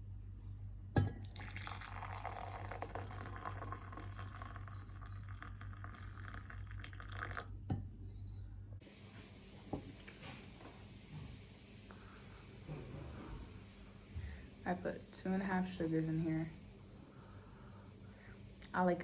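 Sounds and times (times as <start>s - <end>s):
tea pouring into a cup: 1.1s - 8.0s.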